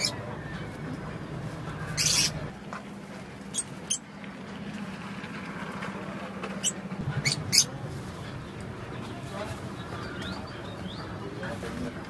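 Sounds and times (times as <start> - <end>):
parakeet squeaking: 0.0 - 0.2, 1.8 - 2.5, 3.5 - 4.0, 6.6 - 7.7.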